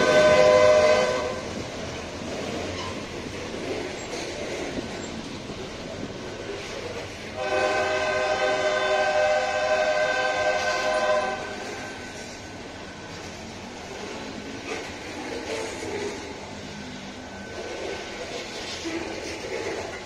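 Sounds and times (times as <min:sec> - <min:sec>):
locomotive air horn blast: 0:00.0 - 0:01.6, 0:07.4 - 0:12.0
freight train wheels rumbling on rail: 0:00.0 - 0:20.0.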